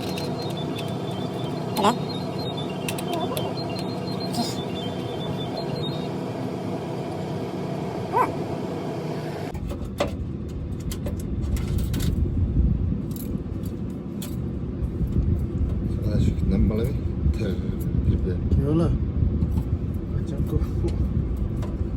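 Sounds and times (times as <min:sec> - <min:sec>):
machinery humming: 0:00.0 - 0:09.6
deep machinery rumble: 0:00.0 - 0:21.9.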